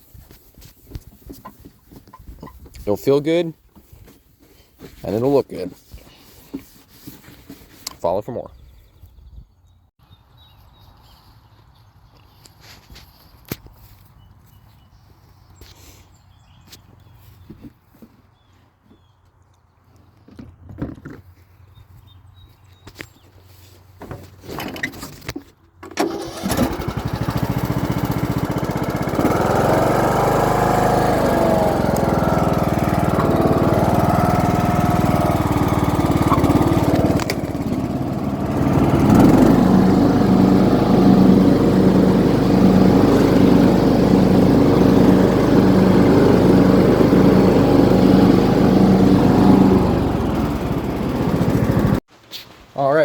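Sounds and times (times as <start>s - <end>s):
riding mower engine running: 25.8s - 52.0s.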